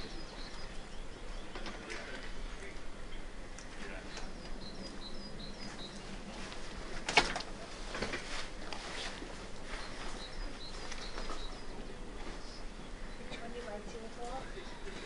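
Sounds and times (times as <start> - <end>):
small bird chirping: 0.0 - 1.6, 4.1 - 6.3, 9.6 - 13.8.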